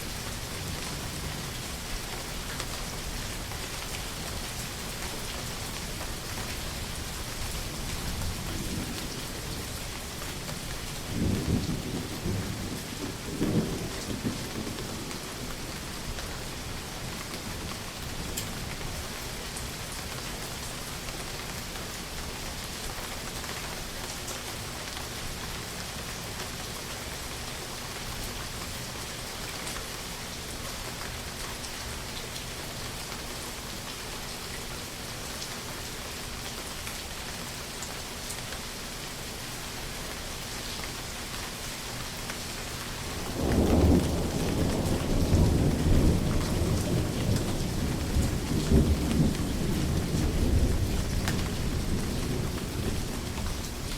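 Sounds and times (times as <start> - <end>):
steady rain falling: 0.0 - 53.9
rolling thunder rumble: 11.0 - 15.9, 43.1 - 53.9.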